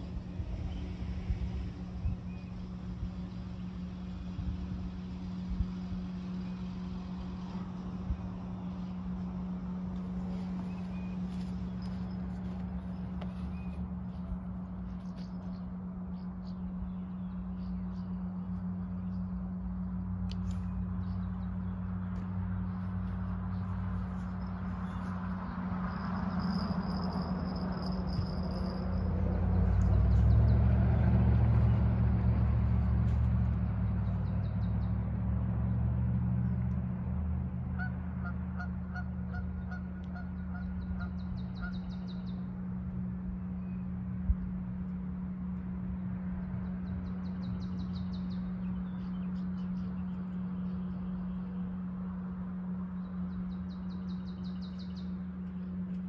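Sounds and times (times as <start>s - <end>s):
low rumble: 0.0s - 56.0s
steady low hum: 0.0s - 56.0s
bird honking: 37.8s - 42.1s.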